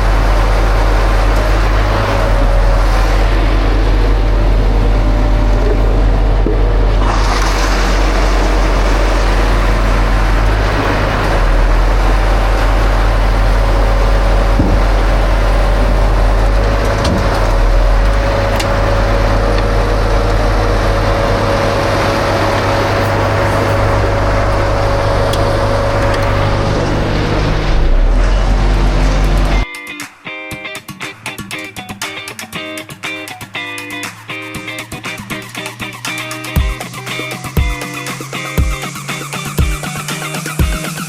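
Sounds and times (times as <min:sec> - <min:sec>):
engine running steadily: 0:00.0 - 0:29.7, 0:31.1 - 0:41.0
steady hum: 0:00.0 - 0:29.7.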